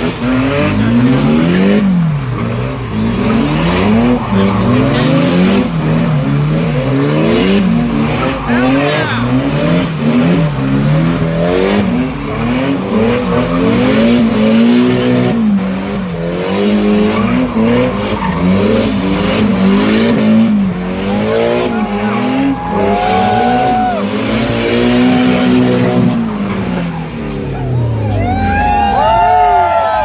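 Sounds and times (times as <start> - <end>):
car engine revving: 0.0 - 30.0
tires squealing on pavement: 0.0 - 30.0.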